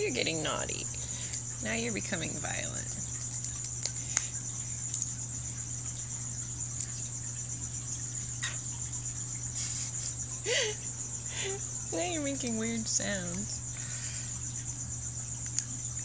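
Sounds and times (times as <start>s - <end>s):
crickets trilling: 0.0s - 16.0s
low steady hum: 0.0s - 16.0s.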